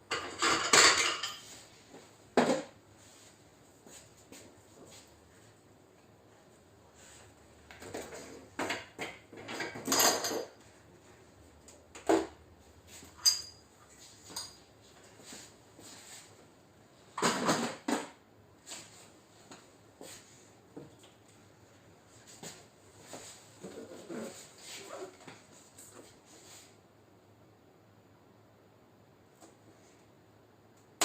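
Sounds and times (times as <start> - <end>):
metal tools clinking: 13.2 - 13.6.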